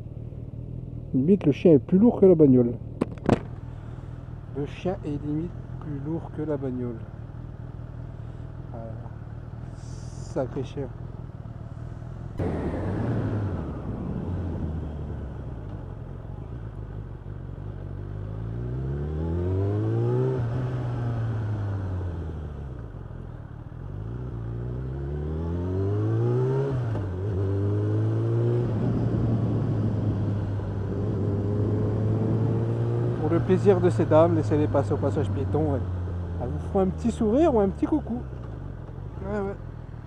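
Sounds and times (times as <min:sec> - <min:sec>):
motorcycle engine accelerating: 0:11.0 - 0:39.8.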